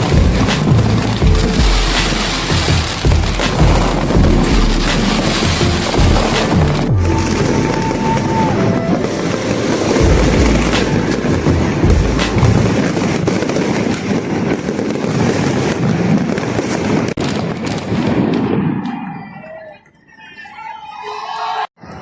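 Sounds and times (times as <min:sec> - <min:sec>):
fireworks bursts and crackling: 0:00.0 - 0:20.2.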